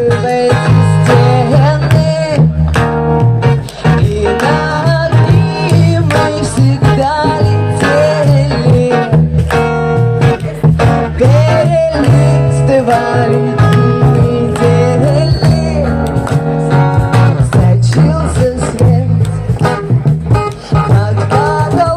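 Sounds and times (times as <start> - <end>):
acoustic guitar: 0.0 - 21.9
person singing: 0.0 - 21.9.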